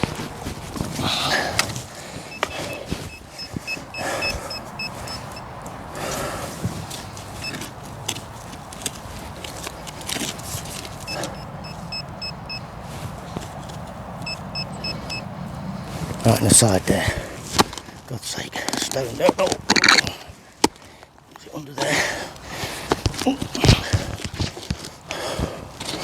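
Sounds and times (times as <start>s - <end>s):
digging in stony soil: 0.0s - 26.0s
metal detector beeping: 1.3s - 5.6s, 7.4s - 7.7s, 9.8s - 12.8s, 14.2s - 15.3s.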